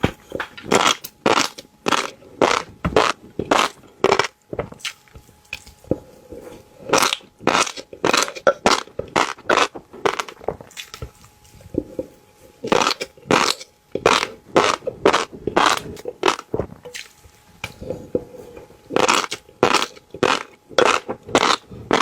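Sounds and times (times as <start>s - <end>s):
crisp crunching bites: 0.7s - 5.8s, 6.9s - 11.3s, 12.7s - 17.2s, 18.9s - 22.0s.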